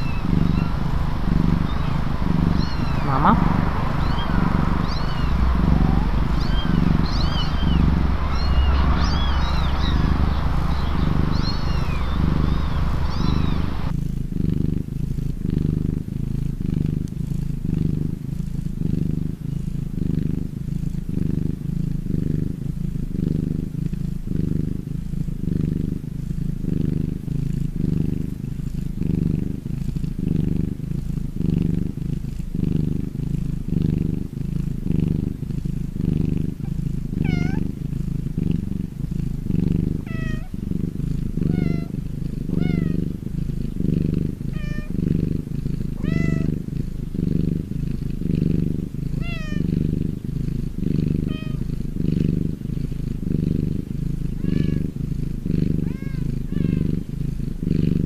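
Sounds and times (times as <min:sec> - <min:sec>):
high chirps: 0:00.0 - 0:13.9
cat purring: 0:00.0 - 0:58.0.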